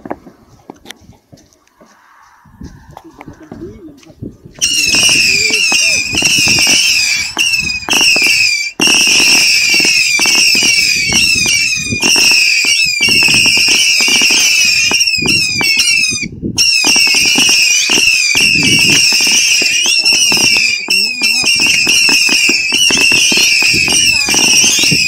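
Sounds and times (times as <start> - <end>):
whistling firework missiles: 4.5 - 25.0
firework pops and cracks: 4.6 - 16.0, 16.8 - 25.0.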